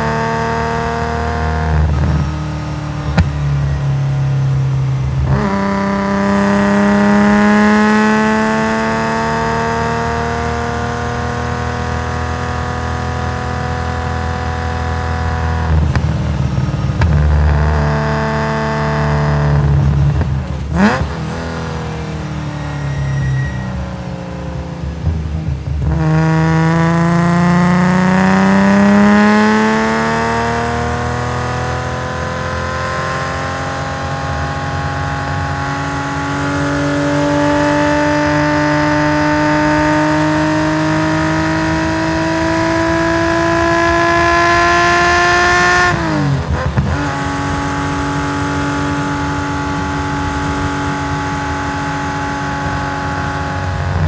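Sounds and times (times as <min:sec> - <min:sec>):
race car engine revving: 0:00.0 - 0:54.0
exhaust crack: 0:01.7 - 0:07.3, 0:15.4 - 0:21.8.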